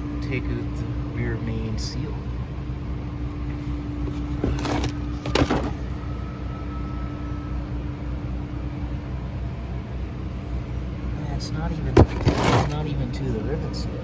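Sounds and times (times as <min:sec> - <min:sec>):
steady low hum: 0:00.0 - 0:14.0
scraping clunks of metal parts: 0:04.0 - 0:05.8, 0:11.9 - 0:12.9.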